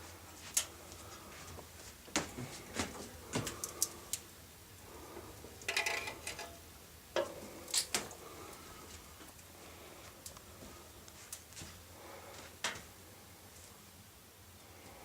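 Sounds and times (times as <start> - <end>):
firewood crackling and popping: 0.2 - 11.8.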